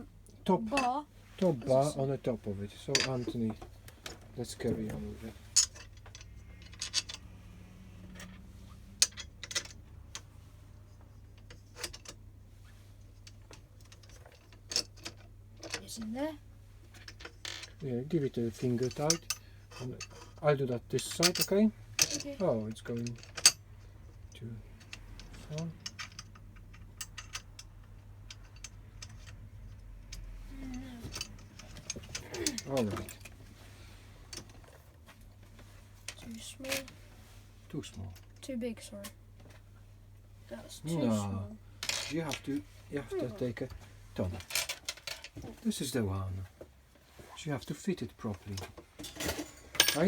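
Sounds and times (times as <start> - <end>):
low steady hum: 0.0 - 50.0
metal parts clicking and tapping: 2.9 - 7.4, 9.0 - 10.3, 11.0 - 12.2, 13.2 - 16.1, 18.8 - 20.4, 21.0 - 33.3.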